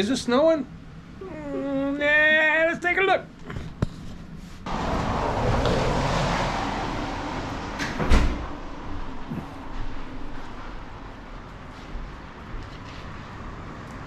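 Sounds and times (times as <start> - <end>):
outdoor noise: 0.0 - 14.0
door sliding open: 4.7 - 11.0.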